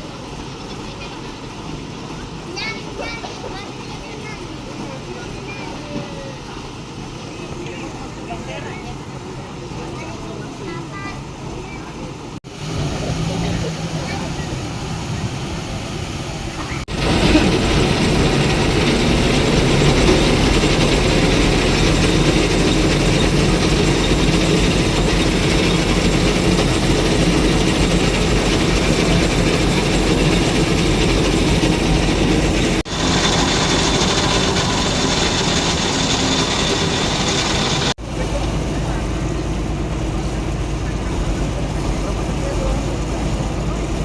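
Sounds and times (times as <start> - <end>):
heavy machinery clattering: 12.6 - 44.0.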